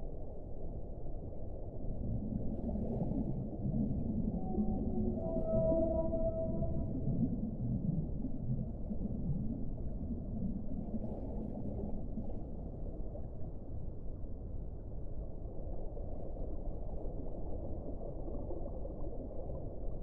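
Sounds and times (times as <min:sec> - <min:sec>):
underwater sea noise: 0:02.2 - 0:13.3
faint low whale moans: 0:02.6 - 0:09.5.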